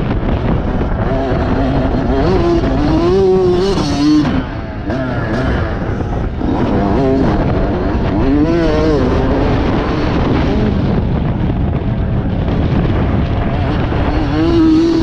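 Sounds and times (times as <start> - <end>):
dense rumbling noise: 0.0 - 15.0
motocross bike engine revving: 0.0 - 15.0.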